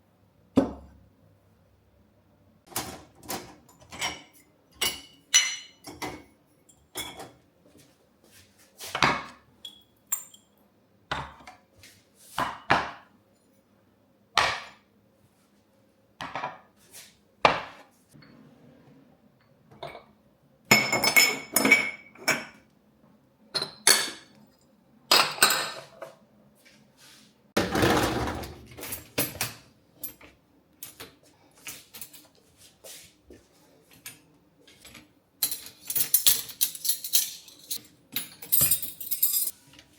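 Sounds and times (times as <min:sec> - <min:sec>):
dishes and cutlery clattering: 0:02.7 - 0:07.4, 0:19.7 - 0:22.6, 0:23.5 - 0:24.3, 0:25.1 - 0:26.2, 0:34.8 - 0:39.6.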